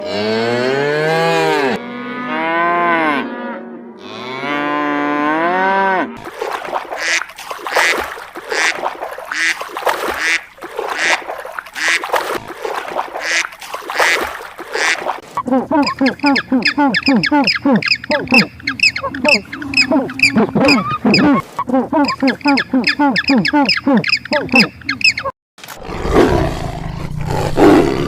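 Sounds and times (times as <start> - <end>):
long pitch-bending animal calls: 15.5 - 25.3.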